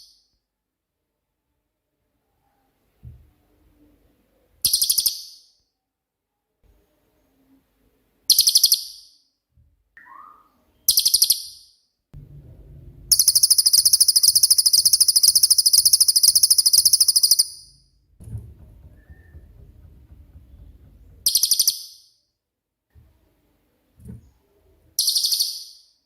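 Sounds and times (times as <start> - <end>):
bird trilling: 13.1 - 17.7.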